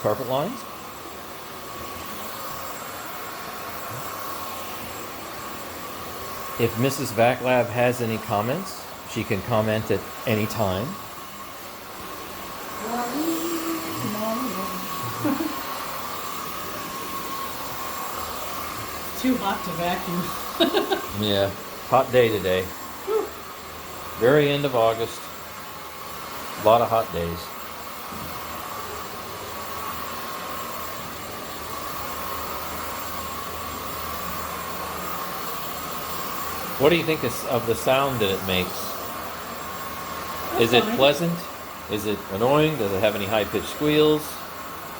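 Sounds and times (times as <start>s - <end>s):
stick vacuum running: 0.0s - 44.9s
voice murmuring: 40.5s - 41.0s.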